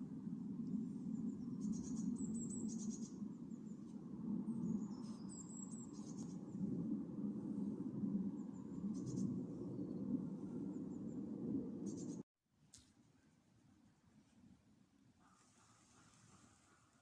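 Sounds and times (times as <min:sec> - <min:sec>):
low rumble: 0:00.0 - 0:12.2
songbirds singing trills: 0:00.7 - 0:06.7, 0:08.3 - 0:12.2.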